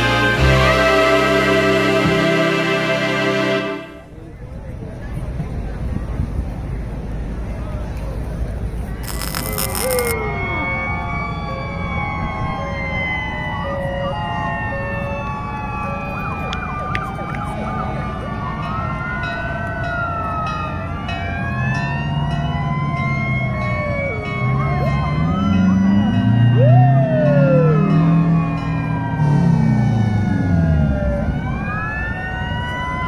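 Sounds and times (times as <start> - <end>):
deep horn tones: 0.0 - 4.1
fire truck sirens wailing: 0.0 - 4.2, 9.0 - 33.0
low engine rumble: 3.9 - 9.2.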